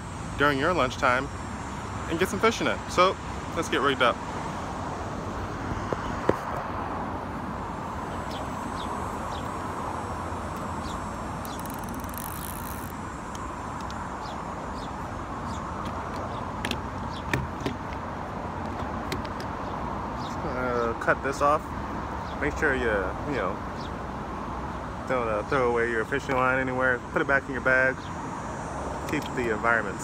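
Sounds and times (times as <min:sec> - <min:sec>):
road traffic hum: 0:00.0 - 0:30.0
fishing gear clicks and taps: 0:11.4 - 0:14.0, 0:18.6 - 0:19.6, 0:29.0 - 0:29.5.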